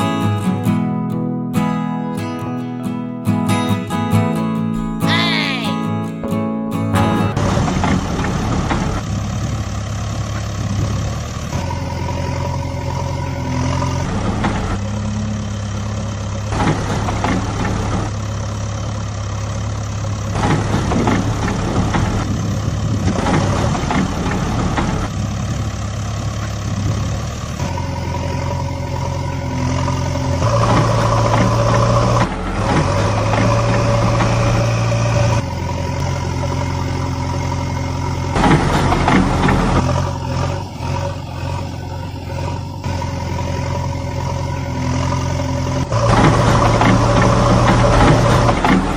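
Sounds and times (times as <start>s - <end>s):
steady engine-like drone: 3.9s - 48.9s.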